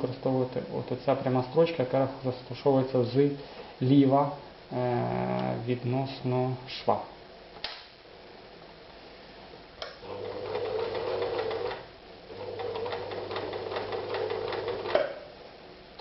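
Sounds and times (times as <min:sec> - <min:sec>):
single clicks: 0:07.6 - 0:07.9
sewing machine stitching: 0:10.0 - 0:15.0.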